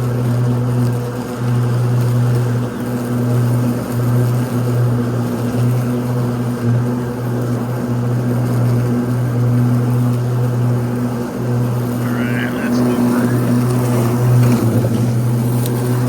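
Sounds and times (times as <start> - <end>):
mower blades humming: 3.8 - 16.0.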